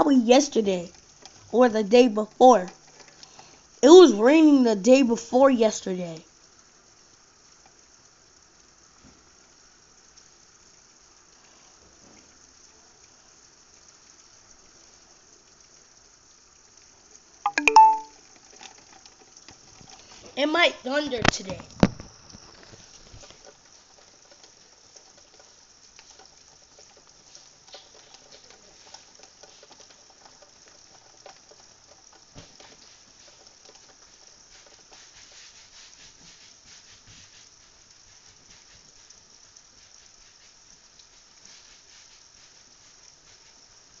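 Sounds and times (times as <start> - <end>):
raindrop ticks: 0.0 - 11.6, 12.3 - 36.6, 37.4 - 44.0
light rain pattering: 0.0 - 44.0.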